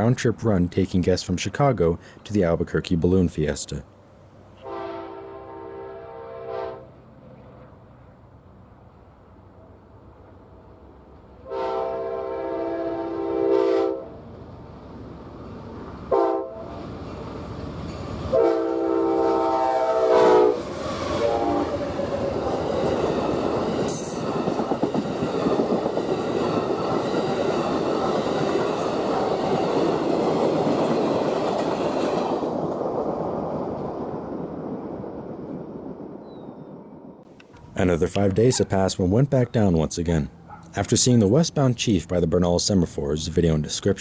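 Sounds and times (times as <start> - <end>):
train air horn: 4.6 - 7.0, 11.4 - 14.2, 16.1 - 16.7, 18.3 - 21.8
train wheels rumbling and clacking: 14.2 - 18.4, 20.2 - 37.7.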